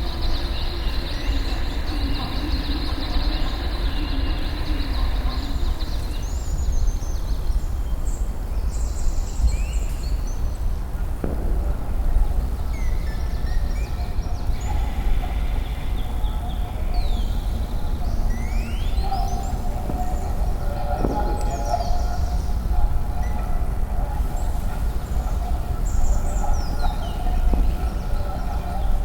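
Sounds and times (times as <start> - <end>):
low rumble: 11.2 - 13.7.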